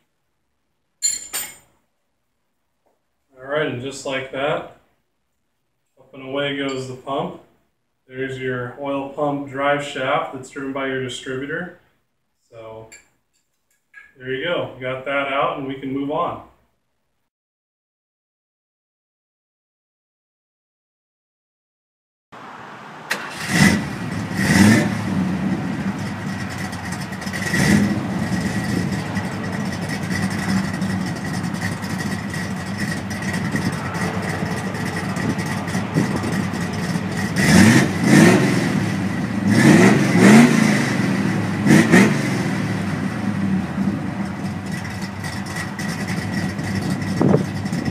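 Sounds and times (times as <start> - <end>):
car engine idling: 22.4 - 47.9
engine throttle blips: 22.4 - 47.9.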